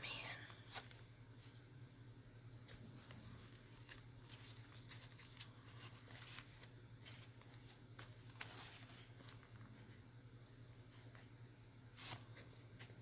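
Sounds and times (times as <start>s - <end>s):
low steady hum: 0.0s - 13.0s
paper and thread rustling: 2.6s - 13.0s.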